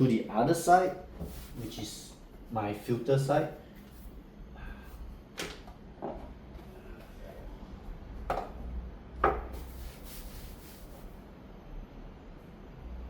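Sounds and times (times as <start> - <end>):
coffee gear knocking on counter: 8.3 - 8.6, 9.2 - 9.5.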